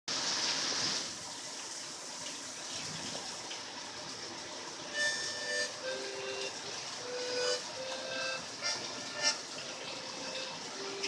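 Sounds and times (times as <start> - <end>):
steady rain hiss: 0.1 - 11.0
sustained music notes: 4.9 - 11.0.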